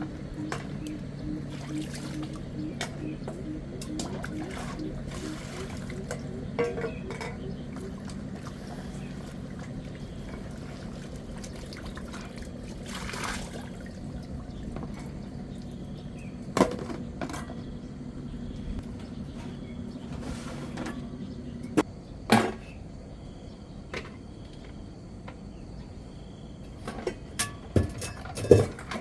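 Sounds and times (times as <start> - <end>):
water trickling and pouring: 7.6 - 16.1.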